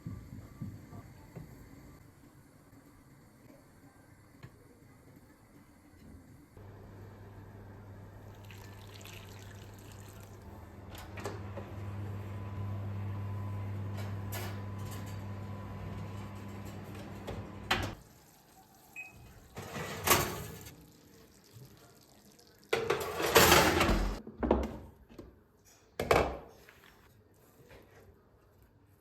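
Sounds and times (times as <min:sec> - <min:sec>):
water running into a container: 0:08.2 - 0:10.5
dishes and pans clattering: 0:22.8 - 0:24.2.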